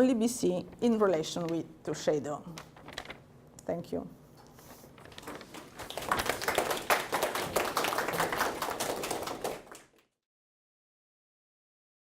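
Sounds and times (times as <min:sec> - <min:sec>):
audience applauding: 0:05.2 - 0:10.1.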